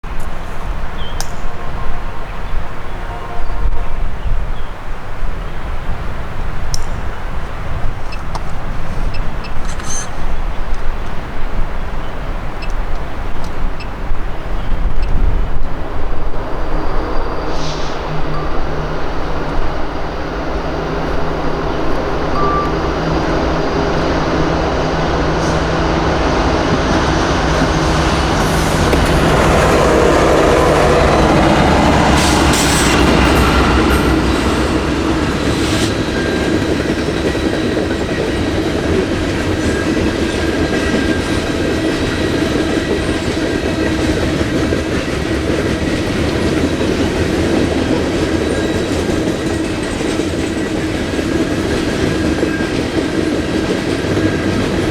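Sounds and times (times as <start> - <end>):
diesel locomotives passing: 0.0 - 54.9
train wheel clatter: 6.4 - 54.9
train wheel squeal: 8.1 - 10.8, 16.4 - 31.4, 32.0 - 54.9.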